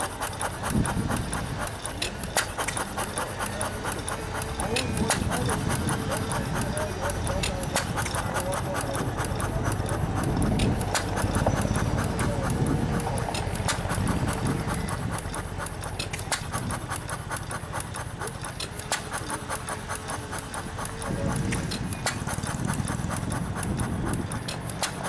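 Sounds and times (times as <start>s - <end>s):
engine valve gear clicking: 0.0s - 25.0s
low engine firing puffs: 0.0s - 25.0s.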